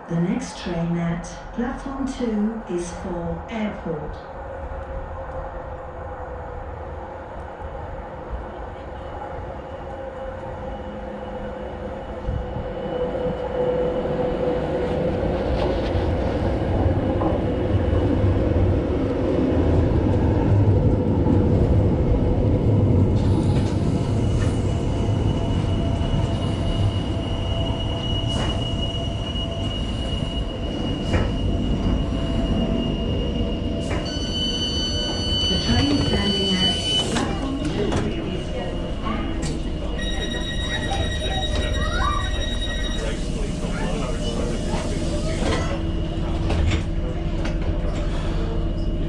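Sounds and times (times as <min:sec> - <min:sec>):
train rumbling on rails: 0:00.0 - 0:49.0
high squeal: 0:25.3 - 0:37.4, 0:38.6 - 0:45.4.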